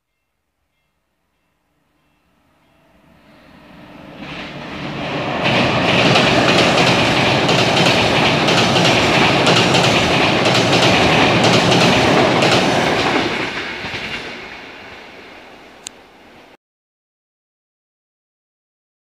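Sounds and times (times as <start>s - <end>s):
train rumbling over bridge: 0.1s - 16.6s
wheel clatter over rails: 5.3s - 14.4s.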